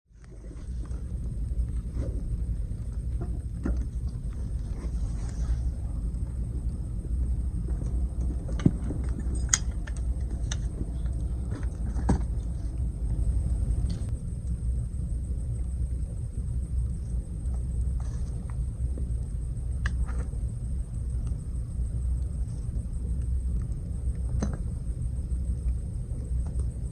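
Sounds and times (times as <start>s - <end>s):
low rumble: 0.1s - 26.9s.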